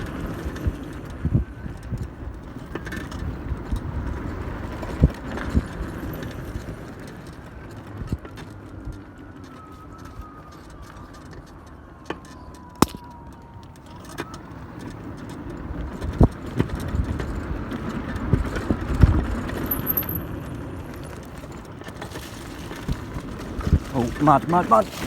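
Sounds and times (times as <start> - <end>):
bike riding noise: 0.0 - 25.0
bike knocking and rattling: 13.8 - 25.0.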